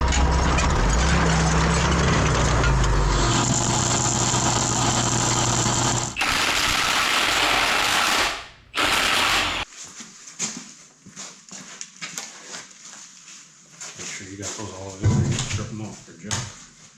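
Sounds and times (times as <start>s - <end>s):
heavy machinery drone: 0.0s - 9.6s
machinery clatter: 0.0s - 9.7s.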